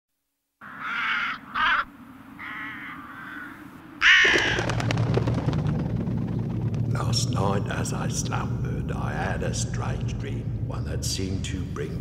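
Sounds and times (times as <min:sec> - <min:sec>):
bird cawing: 0:00.6 - 0:05.2
low rumbling drone with crackling: 0:03.8 - 0:12.0.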